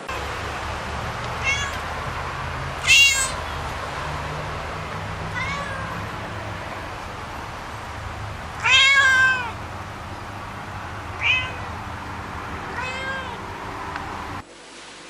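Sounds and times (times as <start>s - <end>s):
steady low hum: 0.0s - 14.4s
cat meowing: 1.4s - 1.9s, 2.8s - 3.4s, 5.3s - 6.1s, 8.6s - 9.6s, 11.1s - 11.8s, 12.7s - 13.4s.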